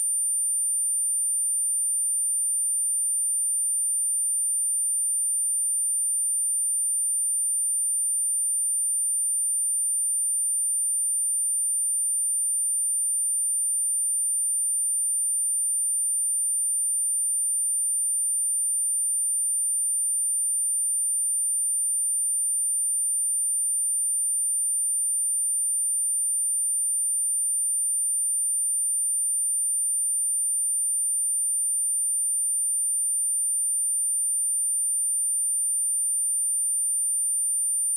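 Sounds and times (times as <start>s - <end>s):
high-pitched sine test tone: 26.6s - 37.9s.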